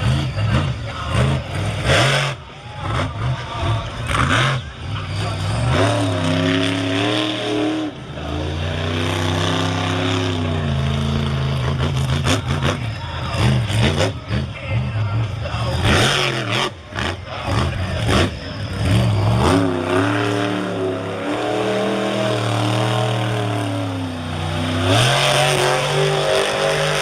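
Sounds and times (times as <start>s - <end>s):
truck engine revving hard: 0.0s - 27.0s.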